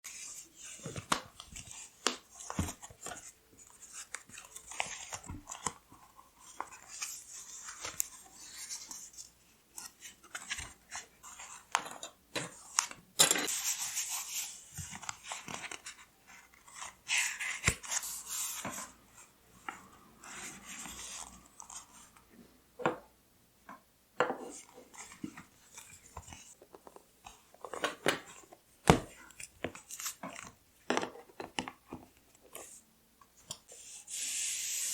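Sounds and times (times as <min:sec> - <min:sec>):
paper rustling and crinkling: 0:12.4 - 0:19.0.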